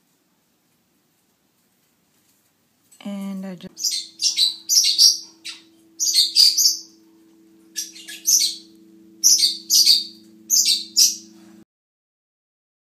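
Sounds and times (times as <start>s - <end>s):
faint low hum: 0.0s - 11.6s
parrots chirping: 3.7s - 11.5s.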